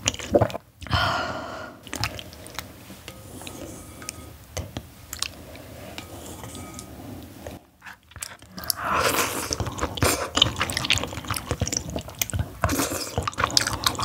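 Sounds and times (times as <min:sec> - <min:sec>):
wet chewing of noodles: 0:00.0 - 0:01.0, 0:01.8 - 0:04.2, 0:05.0 - 0:05.7, 0:07.8 - 0:14.0.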